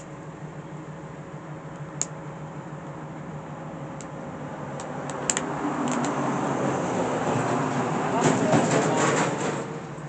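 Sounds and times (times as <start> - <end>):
steady low hum: 0.0 - 8.2
train rumble: 2.3 - 10.0
sharp clicks: 4.8 - 6.2.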